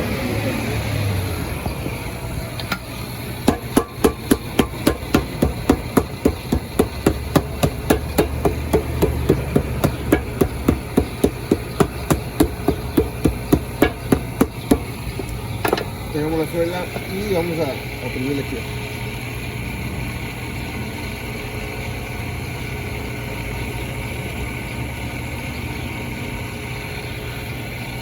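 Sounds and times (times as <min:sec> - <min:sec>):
hammer pounding shoe sole: 0:03.4 - 0:15.3.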